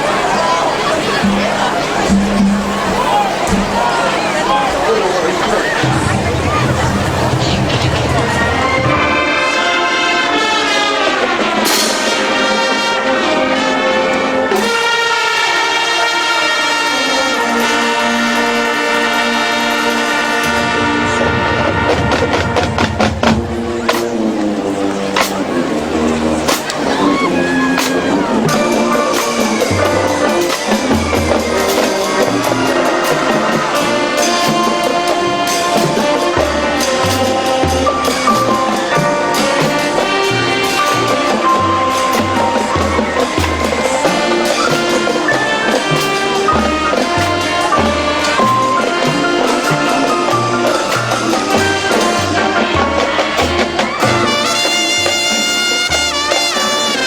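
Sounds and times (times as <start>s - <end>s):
brass section playing loud chords: 0.0s - 57.0s
snare drum strokes: 0.0s - 57.0s
bass drums: 5.8s - 9.3s.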